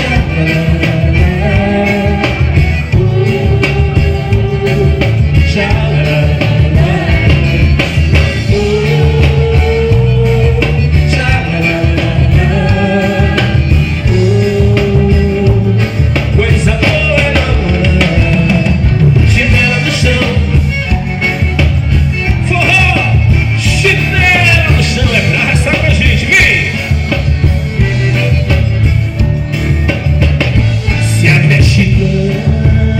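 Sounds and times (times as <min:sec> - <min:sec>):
person singing: 0:00.0 - 0:20.6, 0:30.7 - 0:32.9
band playing dance song: 0:00.0 - 0:32.9.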